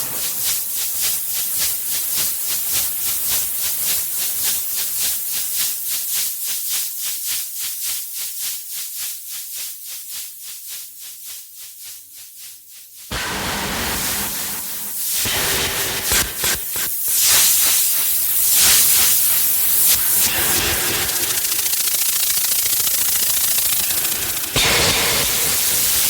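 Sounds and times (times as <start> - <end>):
pulsing hissing glitch music: 15.1 - 26.0.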